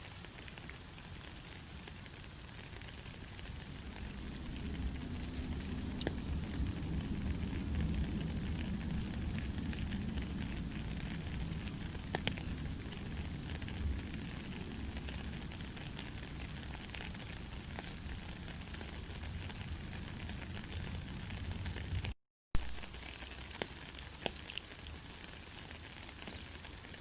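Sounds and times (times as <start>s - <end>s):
low rumble: 3.6s - 17.0s
faint crackling clicks: 9.2s - 12.6s.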